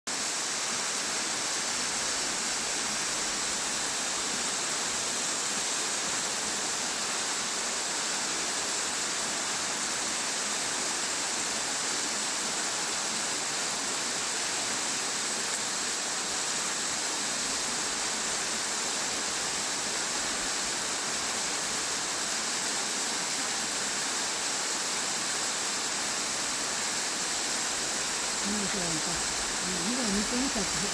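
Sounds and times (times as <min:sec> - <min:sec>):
waterfall rushing: 0:12.4 - 0:30.9.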